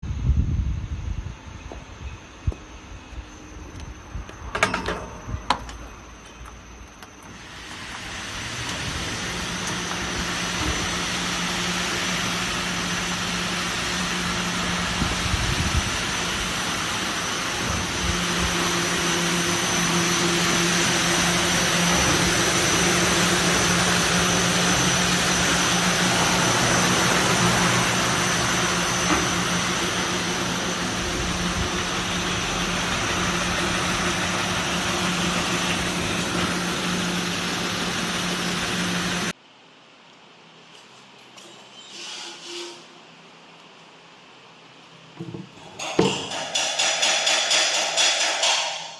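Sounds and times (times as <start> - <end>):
brush sanding machine running: 7.4 - 39.3.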